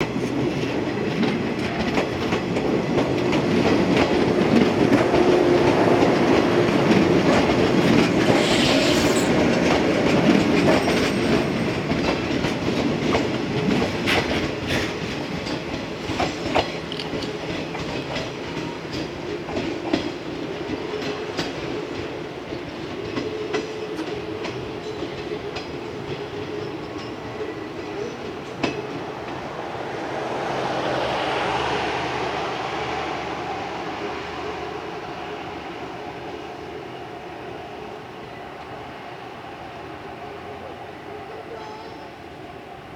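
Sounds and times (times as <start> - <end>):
train wheels clicking over rail joints: 0.0 - 29.5.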